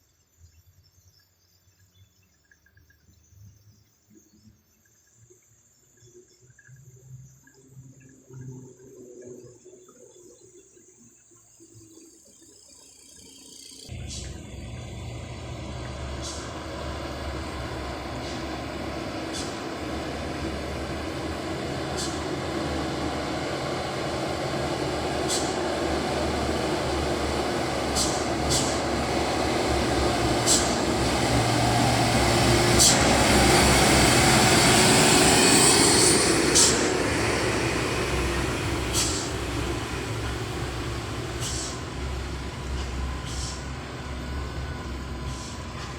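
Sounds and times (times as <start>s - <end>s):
diesel truck engine under load: 13.9s - 45.9s.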